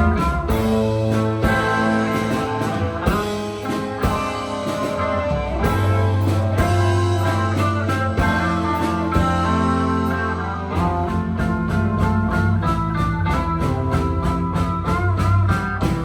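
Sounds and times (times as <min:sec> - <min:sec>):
drum hits: 0:00.0 - 0:16.0
electric guitar lines: 0:00.0 - 0:16.0
sustained bass notes: 0:00.0 - 0:16.0.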